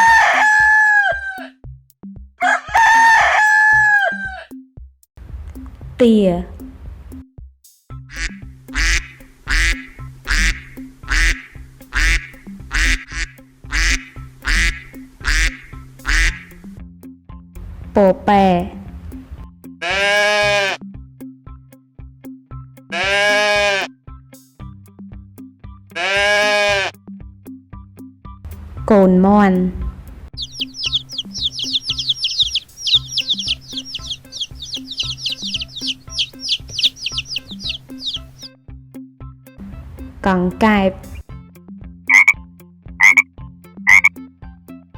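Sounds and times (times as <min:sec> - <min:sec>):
background music: 0:00.0 - 0:44.9
duck quacking: 0:08.1 - 0:16.6, 0:19.8 - 0:20.8, 0:23.0 - 0:23.9, 0:26.0 - 0:26.9, 0:30.4 - 0:38.5, 0:42.1 - 0:42.4, 0:43.0 - 0:43.2, 0:43.9 - 0:44.1
baby chicks peeping: 0:08.2 - 0:16.6, 0:30.4 - 0:38.5, 0:42.1 - 0:42.4, 0:43.0 - 0:43.2, 0:43.9 - 0:44.1.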